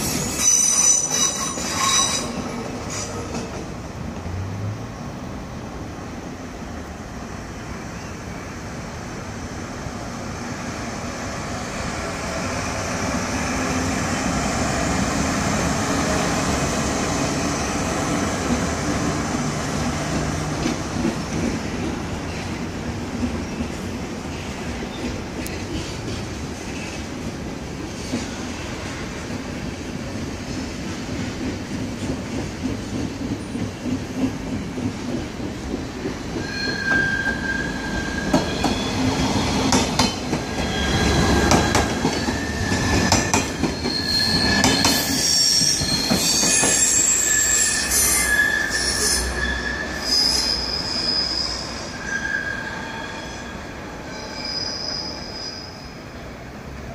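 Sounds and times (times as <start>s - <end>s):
high wheel squeal: 0.0s - 3.3s, 36.4s - 39.6s, 40.4s - 56.1s
train wheels rumbling and clicking: 0.0s - 4.5s, 13.0s - 49.1s.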